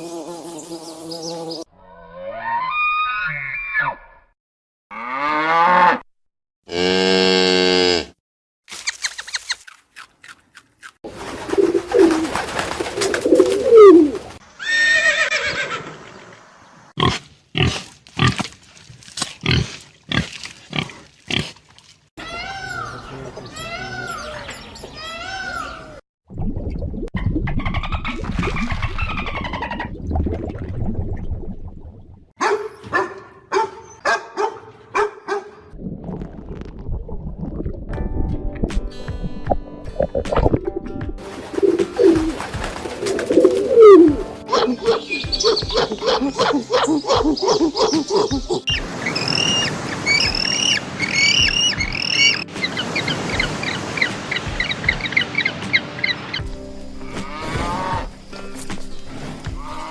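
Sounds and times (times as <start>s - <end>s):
animal gliding calls: 11.2s - 15.6s, 41.2s - 56.2s, 59.6s - 59.9s
dog barking high-pitched: 32.4s - 35.6s, 43.8s - 48.6s.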